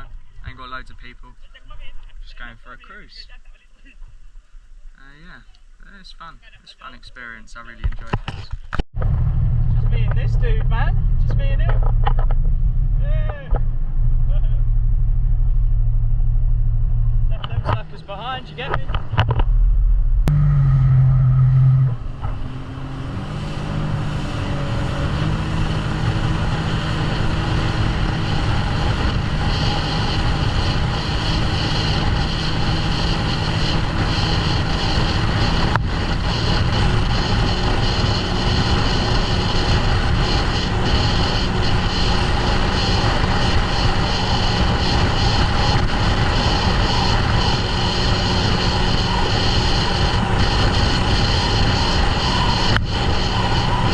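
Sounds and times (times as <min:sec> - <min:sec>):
jet ski engine: 0:20.2 - 0:53.9.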